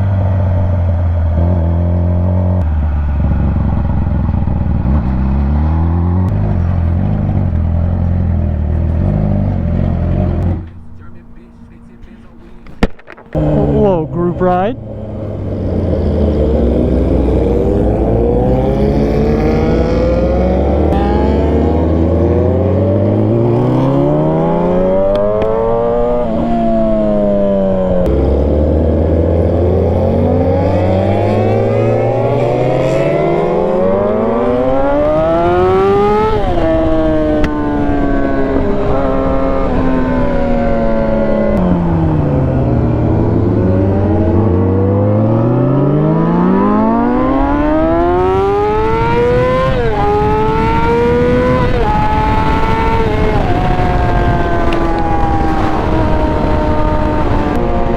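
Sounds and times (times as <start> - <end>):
motorcycle engine accelerating: 0.0 - 57.9.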